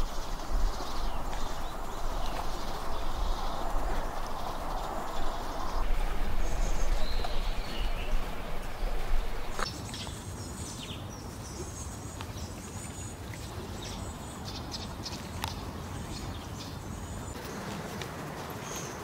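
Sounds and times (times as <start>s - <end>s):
low rumble: 0.0s - 9.6s
steady hiss: 0.0s - 9.7s.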